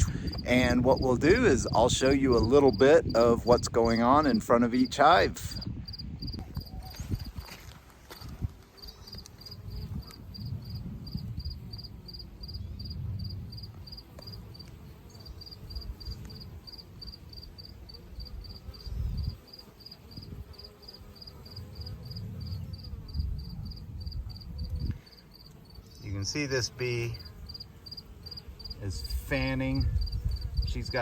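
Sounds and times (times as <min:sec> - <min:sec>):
cricket chirping: 0:05.5 - 0:07.6, 0:08.8 - 0:26.0, 0:27.2 - 0:30.7.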